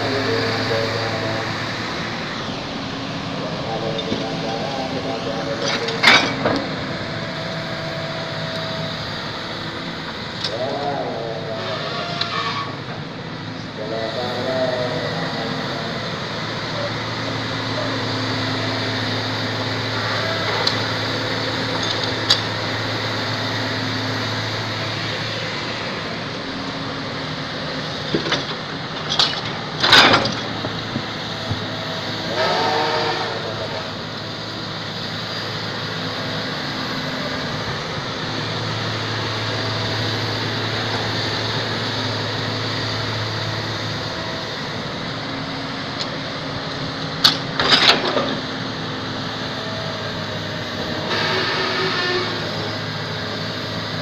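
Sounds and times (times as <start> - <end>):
excavator engine running: 0.0 - 54.0.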